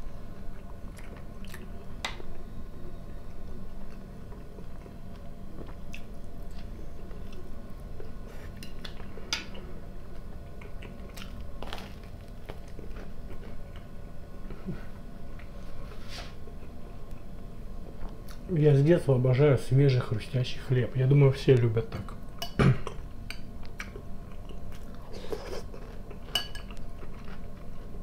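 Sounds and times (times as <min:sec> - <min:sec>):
man chewing and crunching: 0:00.4 - 0:01.9, 0:03.8 - 0:09.1, 0:10.1 - 0:13.9, 0:23.6 - 0:28.0.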